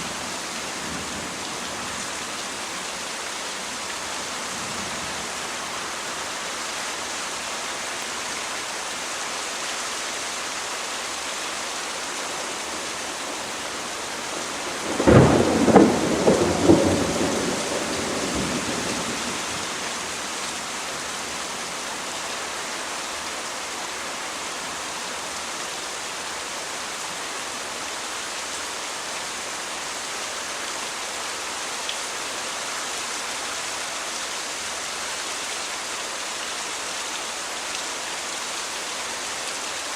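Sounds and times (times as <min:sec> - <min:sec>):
heavy rain: 0:00.0 - 0:39.9
thunder cracks and rumble: 0:14.8 - 0:19.1.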